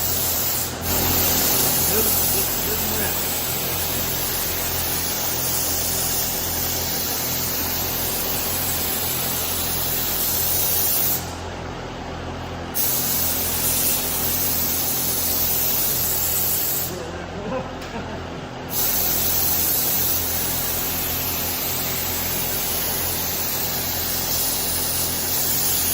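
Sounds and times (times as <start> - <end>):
spray gun hissing: 0.0 - 11.4, 12.8 - 17.0, 18.7 - 25.9
steady low hum: 0.0 - 25.9.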